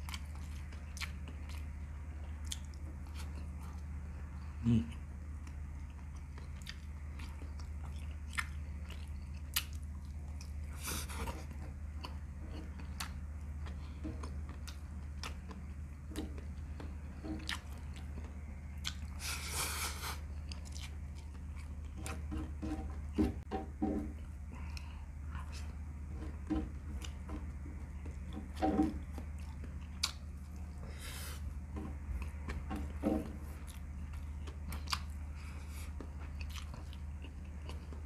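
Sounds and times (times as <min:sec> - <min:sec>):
person chewing and biting meat: 0:05.4 - 0:23.2, 0:29.0 - 0:33.0, 0:33.6 - 0:38.0.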